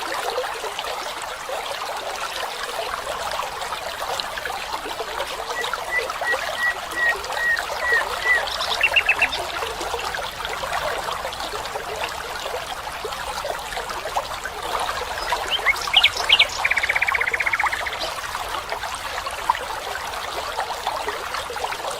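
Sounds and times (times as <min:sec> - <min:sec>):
water trickling: 0:00.0 - 0:21.9
bird calling: 0:05.3 - 0:09.5, 0:15.2 - 0:18.2.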